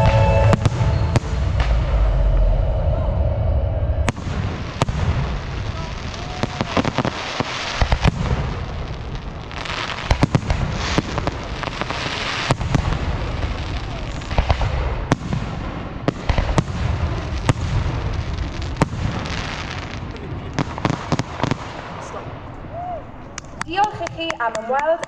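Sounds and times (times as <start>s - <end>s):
firework bangs: 0.0s - 2.4s, 4.0s - 25.0s
low rumble: 0.0s - 6.7s
firework crackling hiss: 4.1s - 22.9s.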